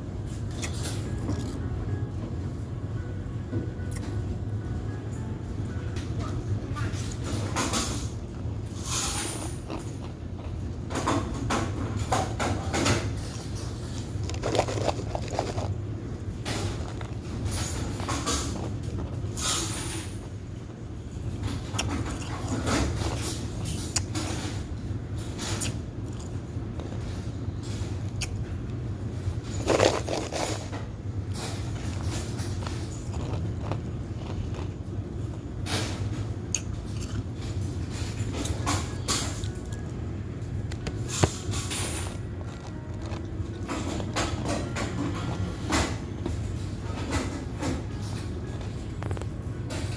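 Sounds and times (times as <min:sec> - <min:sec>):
low machinery hum: 0:00.0 - 0:49.9
ice crunching in mouth: 0:14.2 - 0:15.8, 0:29.6 - 0:30.6.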